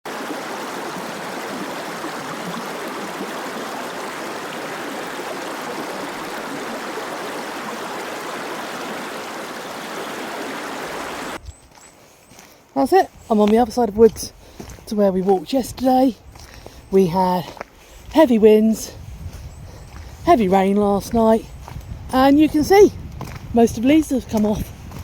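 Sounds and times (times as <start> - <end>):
stream rushing: 0.1 - 11.4.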